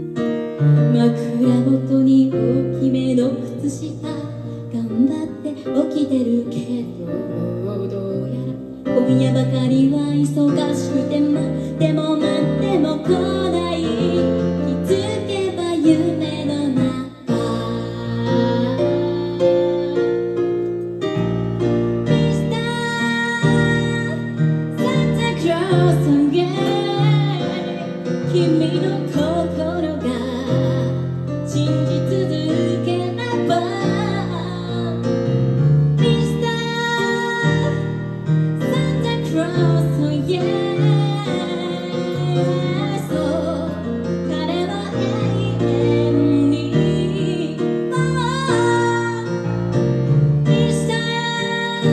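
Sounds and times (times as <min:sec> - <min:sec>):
piano chords: 0:00.0 - 0:51.9
woman singing: 0:00.9 - 0:20.2, 0:22.1 - 0:35.2, 0:36.0 - 0:38.0, 0:38.6 - 0:49.4, 0:50.4 - 0:51.9.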